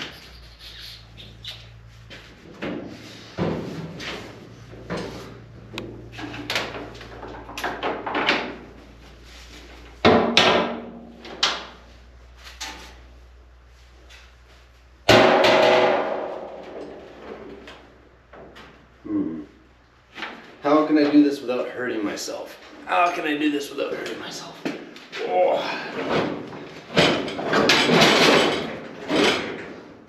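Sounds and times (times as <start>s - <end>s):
loud ringing metal bangs: 15.1s - 17.4s.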